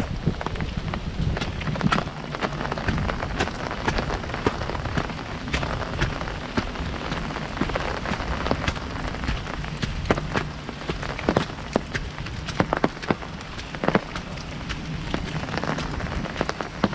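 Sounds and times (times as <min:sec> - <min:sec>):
heavy rain hiss: 0:00.0 - 0:16.9
rain drops striking an umbrella: 0:00.0 - 0:16.9.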